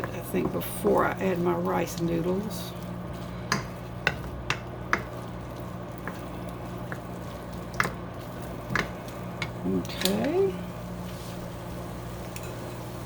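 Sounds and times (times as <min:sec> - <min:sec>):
steady low hum: 0:00.0 - 0:13.0
utensil clicking against pan: 0:03.5 - 0:08.0, 0:08.7 - 0:10.4.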